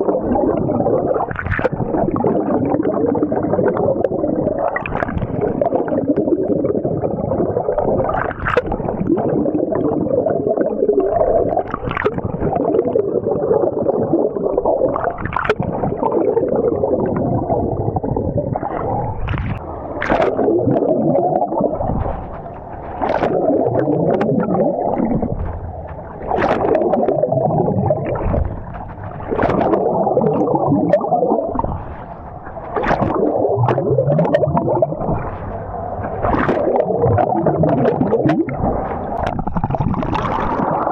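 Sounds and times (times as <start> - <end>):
muffled underwater water sloshing: 13.8 - 40.9.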